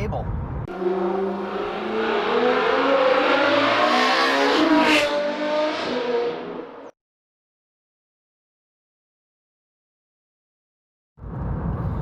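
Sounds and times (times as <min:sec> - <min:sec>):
car engine accelerating: 0:00.6 - 0:06.9.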